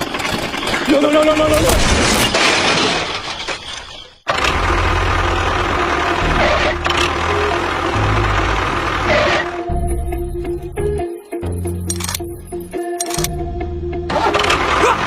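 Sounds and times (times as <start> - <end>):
small motor rumbling: 4.3 - 9.8.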